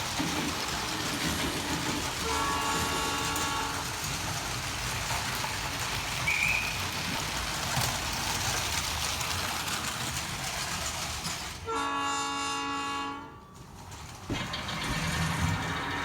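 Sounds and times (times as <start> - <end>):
train horn blast: 2.2 - 4.0, 11.6 - 13.5.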